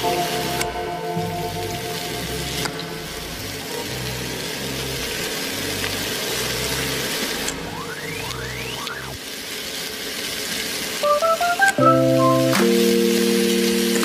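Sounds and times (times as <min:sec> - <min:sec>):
background music with deep bass: 0:00.0 - 0:04.4.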